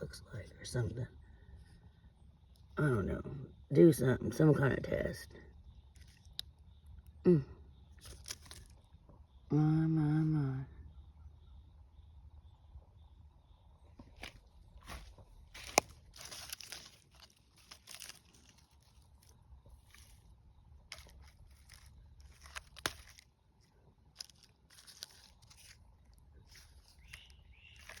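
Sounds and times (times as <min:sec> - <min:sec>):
footsteps crunching on dry ground: 0:14.0 - 0:28.0.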